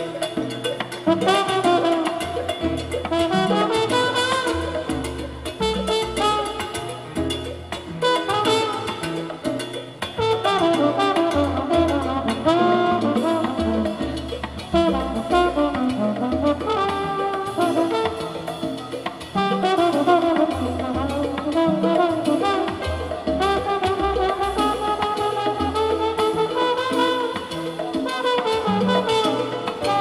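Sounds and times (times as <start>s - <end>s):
salsa band playing: 0.0s - 30.0s
brass section phrases: 3.1s - 5.0s, 8.0s - 9.1s, 10.2s - 14.0s, 19.4s - 30.0s.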